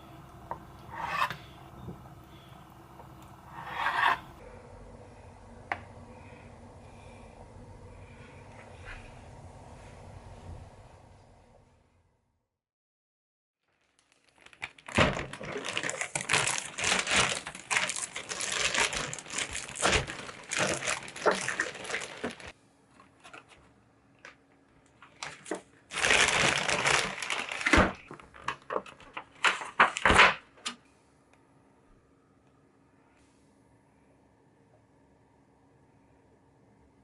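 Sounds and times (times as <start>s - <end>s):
packaging crinkling: 13.6s - 22.5s, 25.0s - 30.2s.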